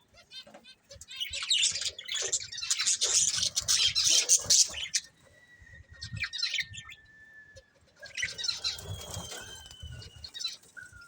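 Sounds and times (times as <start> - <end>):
budgerigars chirping and chattering: 0.0 - 5.3, 5.9 - 7.0, 7.8 - 11.0
wings fluttering: 2.7 - 5.1, 8.0 - 11.0.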